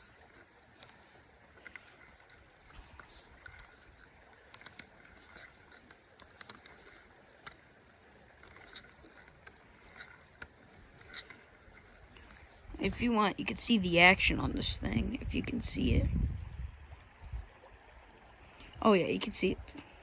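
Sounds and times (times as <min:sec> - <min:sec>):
small clicks and taps: 0:00.0 - 0:07.7
faint creek water running: 0:00.0 - 0:20.0.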